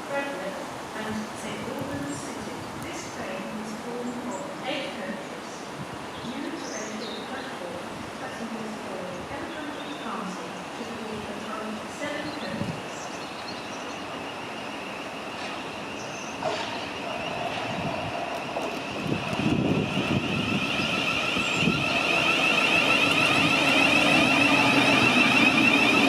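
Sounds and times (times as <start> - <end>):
electric train motor whine: 13.6 - 26.0.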